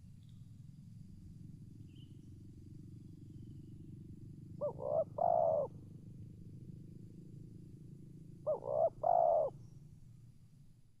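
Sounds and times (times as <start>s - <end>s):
dove cooing: 4.6s - 5.8s, 8.4s - 9.6s.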